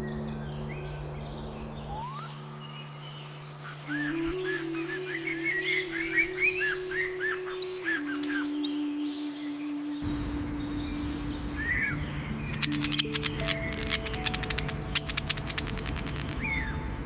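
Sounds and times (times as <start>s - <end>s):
songbird chirping: 0.0s - 17.0s
synth pad music: 0.0s - 17.0s.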